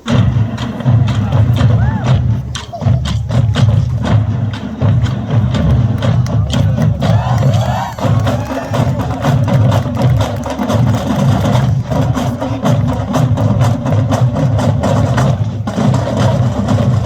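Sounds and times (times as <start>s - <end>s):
heavy low drum: 0.0s - 17.0s
marching band drums: 0.0s - 17.0s.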